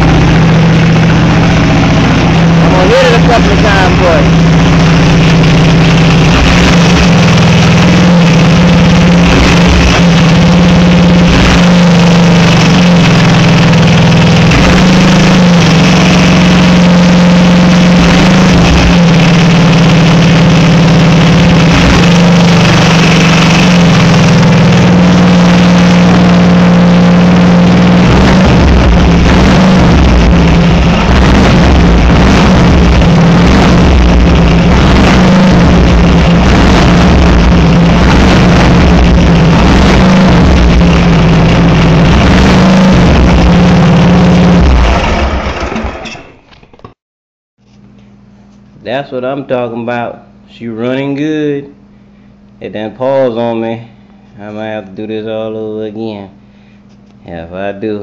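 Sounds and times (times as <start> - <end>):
lawnmower engine running loud: 0.0 - 46.1.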